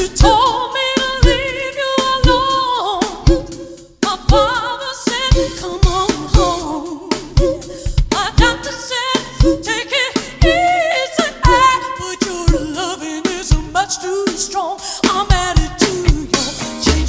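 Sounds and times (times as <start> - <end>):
soul music live band: 0.0 - 17.0
drum hits: 15.1 - 17.0.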